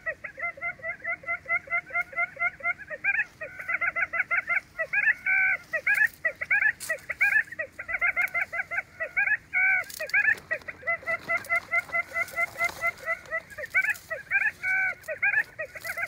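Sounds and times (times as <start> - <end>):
quail calling: 0.0 - 16.0.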